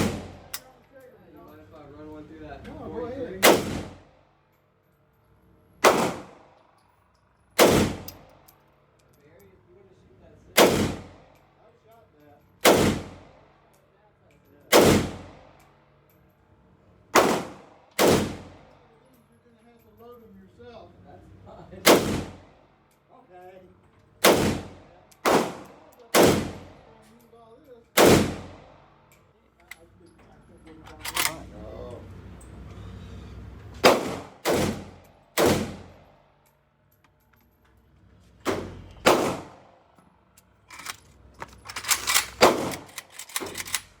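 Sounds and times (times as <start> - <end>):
gunshots with ringing decay: 0.0 - 0.6, 3.4 - 4.0, 5.8 - 6.6, 7.6 - 8.3, 10.6 - 11.3, 12.6 - 13.5, 14.7 - 15.5, 17.2 - 18.7, 21.8 - 22.6, 24.2 - 26.9, 28.0 - 29.0, 33.8 - 36.2, 38.5 - 39.8, 41.9 - 43.8
light metallic clattering: 40.1 - 44.0.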